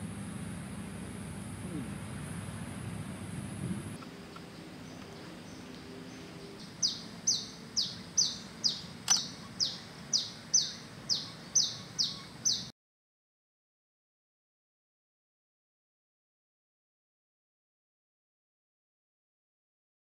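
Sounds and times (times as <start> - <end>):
low steady background noise: 0.0 - 12.7
bird calling high downward notes: 1.5 - 12.7
sharp click: 9.0 - 9.3.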